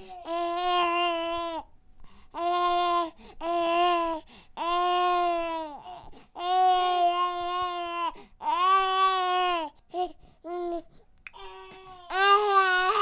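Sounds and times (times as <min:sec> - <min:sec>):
baby crying: 0:02.4 - 0:09.8, 0:11.4 - 0:13.0.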